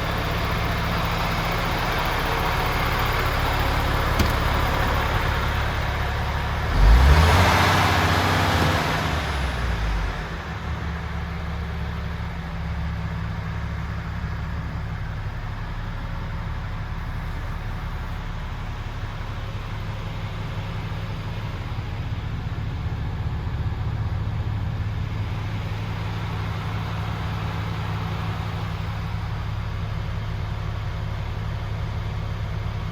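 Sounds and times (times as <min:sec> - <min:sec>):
diesel truck engine idling and revving: 0:00.0 - 0:32.9.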